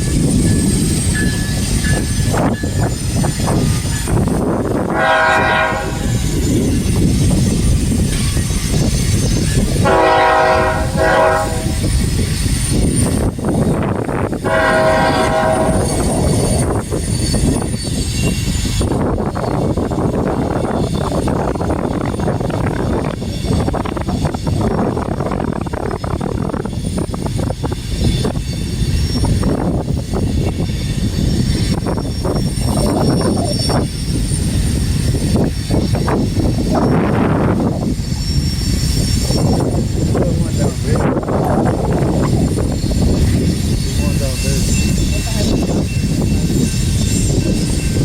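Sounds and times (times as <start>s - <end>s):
freight train rumbling: 0.0s - 48.0s
diesel locomotive horn blasts: 4.9s - 6.2s, 9.8s - 11.8s, 14.4s - 16.1s.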